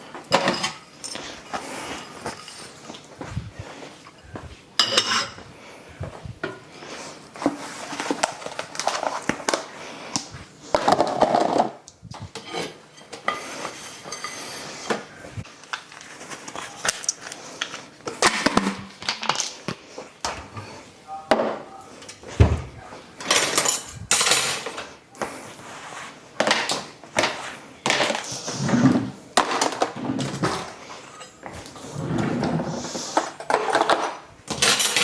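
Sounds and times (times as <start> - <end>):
dishes clattering: 0.3 - 1.2, 4.8 - 5.4, 10.8 - 15.1, 21.3 - 24.9, 26.4 - 35.0.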